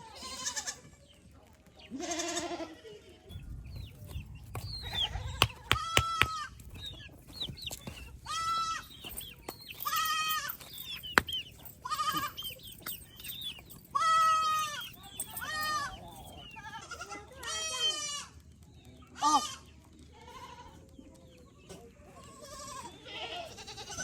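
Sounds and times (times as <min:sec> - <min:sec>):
goats bleating: 0:00.0 - 0:01.0, 0:01.9 - 0:02.9, 0:11.8 - 0:12.5, 0:22.2 - 0:24.0
sharp clicks: 0:05.3 - 0:06.4.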